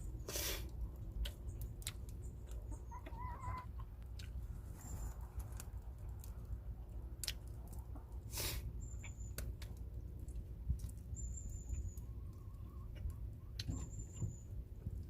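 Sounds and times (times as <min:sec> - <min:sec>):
wood fire crackling: 0:04.0 - 0:11.2.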